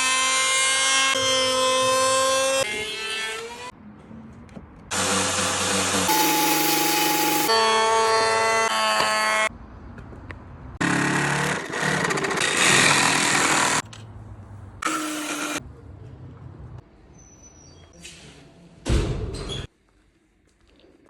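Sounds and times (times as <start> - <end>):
power tool sanding wood: 4.9 - 8.4
power tool motor whine: 4.9 - 9.3, 14.8 - 15.6.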